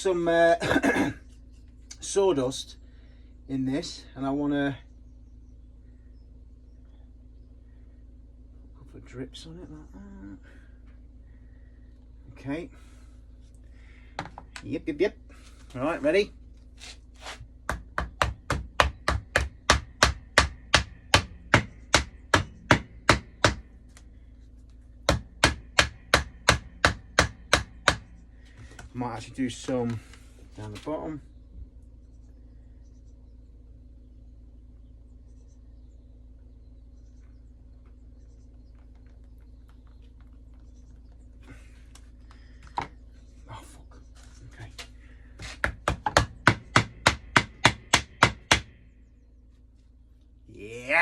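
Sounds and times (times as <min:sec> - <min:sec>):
steady low hum: 0:00.0 - 0:51.0
rapid sharp knocks: 0:17.7 - 0:23.7, 0:25.1 - 0:28.1, 0:45.6 - 0:48.7.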